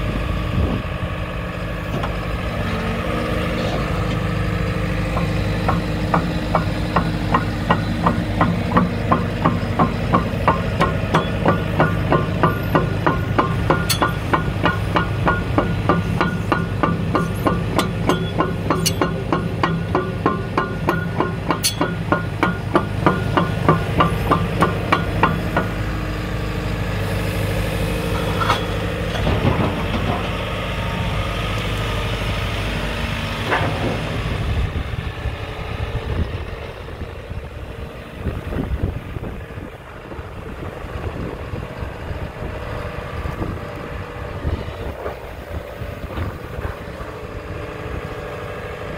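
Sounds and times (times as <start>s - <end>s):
excavator diesel engine running: 0.0s - 48.9s
isolated clunks: 28.1s - 30.4s.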